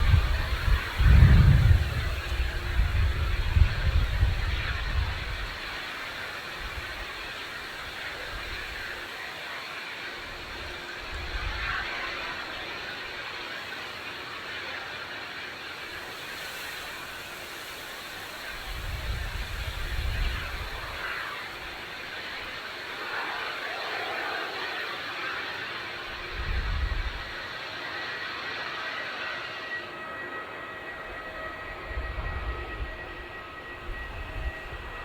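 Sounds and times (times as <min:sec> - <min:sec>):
wind buffeting microphone: 0:00.0 - 0:09.0, 0:18.3 - 0:22.6, 0:26.0 - 0:27.4, 0:30.9 - 0:35.0
distant turboprop airliner hum: 0:00.0 - 0:35.0.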